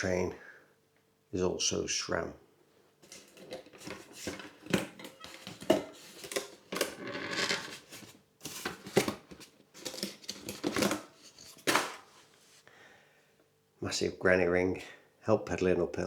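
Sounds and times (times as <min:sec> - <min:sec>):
hands rustling packaging: 0:03.0 - 0:12.6.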